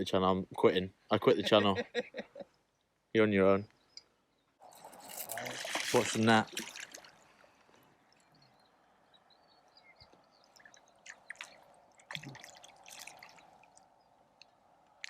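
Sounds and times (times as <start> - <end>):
faint water drips and splashes: 4.6 - 15.0.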